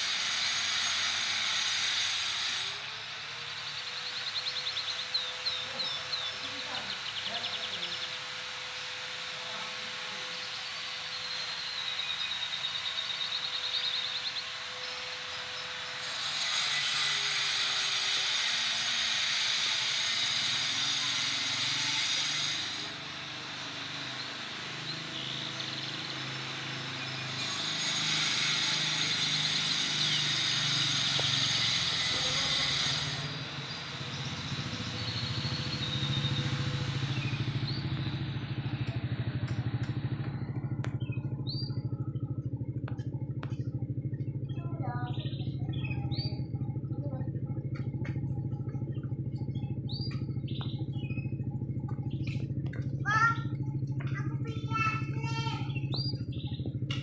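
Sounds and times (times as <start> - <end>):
motorcycle engine: 0.0 - 57.0
canary chirps: 3.5 - 9.1, 9.9 - 18.4, 23.6 - 38.2, 40.9 - 42.4, 44.9 - 46.9, 48.9 - 52.6, 55.7 - 56.8.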